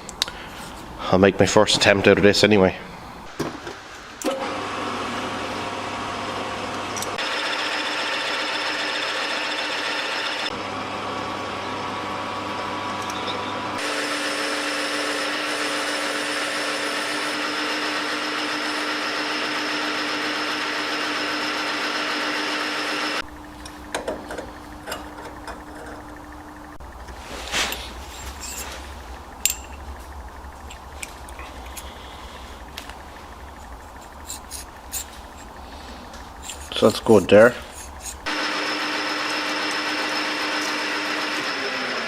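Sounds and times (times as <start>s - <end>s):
machine tool cutting steel: 13.2s - 23.2s, 37.6s - 42.0s.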